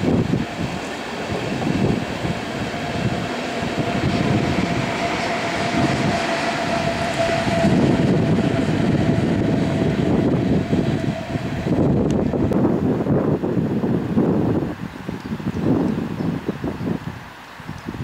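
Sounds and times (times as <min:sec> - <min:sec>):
steady whine: 0:00.0 - 0:13.2
train wheels rumbling on rails: 0:00.0 - 0:18.0.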